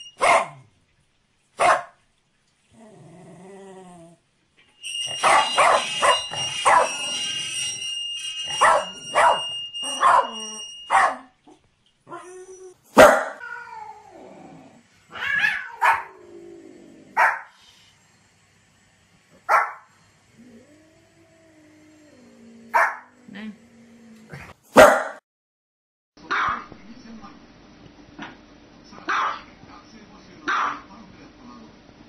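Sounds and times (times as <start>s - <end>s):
dog barking: 0.2s - 0.7s, 1.6s - 2.0s, 5.2s - 7.0s, 8.5s - 11.3s, 13.0s - 13.4s, 15.4s - 16.2s, 17.2s - 17.5s, 19.5s - 19.9s, 22.7s - 23.1s, 24.7s - 25.2s, 26.3s - 26.7s, 29.1s - 29.5s, 30.5s - 30.9s
dog wavering cries: 4.8s - 7.8s, 8.4s - 11.3s, 12.1s - 14.3s, 15.1s - 16.3s, 22.0s - 23.2s.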